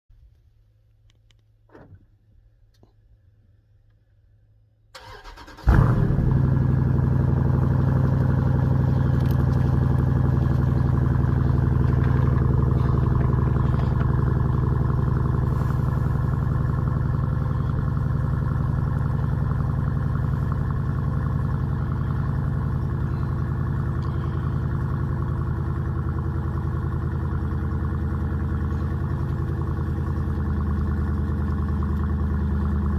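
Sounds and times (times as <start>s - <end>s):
car engine idling: 1.1s - 32.9s
car starter cranking: 5.0s - 22.8s.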